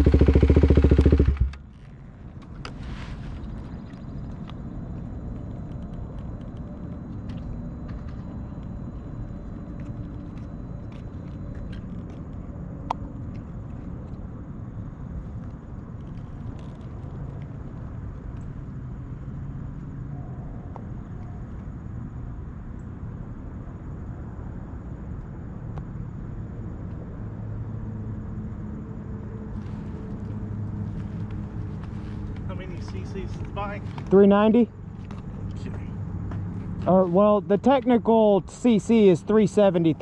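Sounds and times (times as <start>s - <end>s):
motorcycle engine idling: 0.0s - 2.7s.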